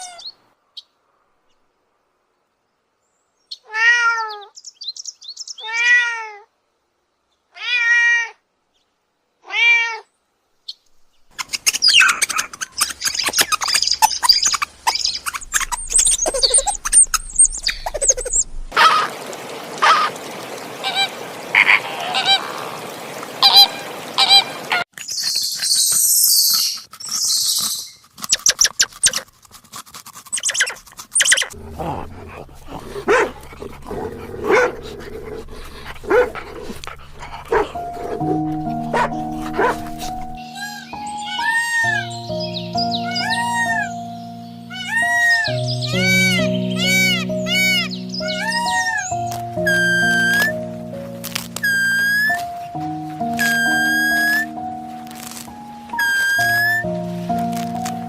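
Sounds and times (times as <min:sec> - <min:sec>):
cat meowing: 0:03.7 - 0:04.5, 0:40.6 - 0:42.1, 0:43.0 - 0:43.9, 0:44.7 - 0:49.1
animal chirps and clicks: 0:11.3 - 0:18.6, 0:24.9 - 0:31.6, 0:44.7 - 0:50.6, 0:51.2 - 0:52.6, 0:53.3 - 0:58.0.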